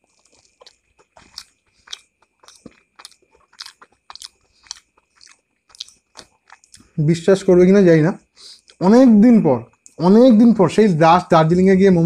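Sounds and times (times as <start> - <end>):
mouth chewing clicks and smacks: 0.0 - 7.0, 8.4 - 8.8, 9.7 - 10.0.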